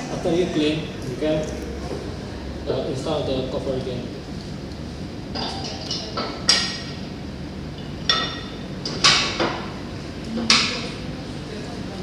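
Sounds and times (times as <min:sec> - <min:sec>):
metallic clanks and clinks: 0:05.4 - 0:06.9.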